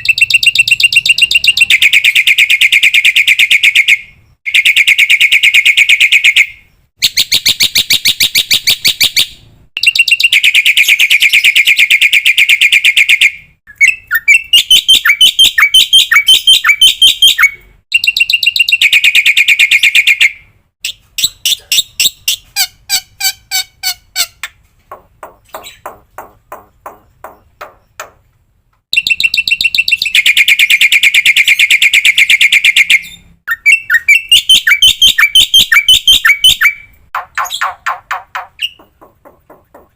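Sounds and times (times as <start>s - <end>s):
myna bird trilling and chattering: 0.0s - 3.9s, 20.8s - 24.5s, 29.0s - 39.1s.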